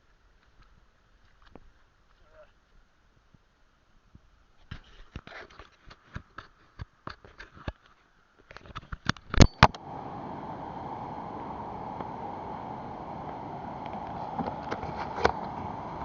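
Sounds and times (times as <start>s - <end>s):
steady rushing noise: 9.6s - 16.0s.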